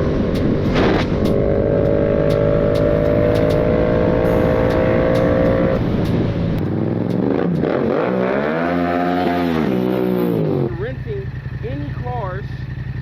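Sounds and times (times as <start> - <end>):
low rough rumble: 0.0 - 7.9
engine at high revs: 0.0 - 12.2.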